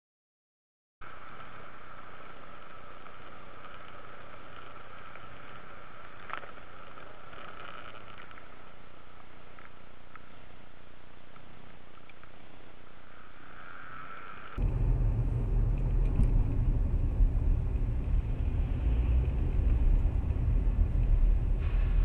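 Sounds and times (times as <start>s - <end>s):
constant whine: 1.0s - 22.0s
car road and engine noise: 13.6s - 22.0s.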